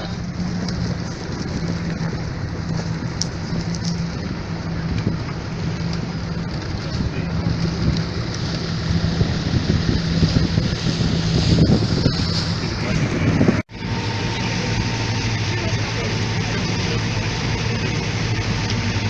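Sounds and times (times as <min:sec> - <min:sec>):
wind noise on microphone: 0:00.0 - 0:15.2
motorboat engine humming: 0:00.0 - 0:19.0
rushing water: 0:00.0 - 0:19.0.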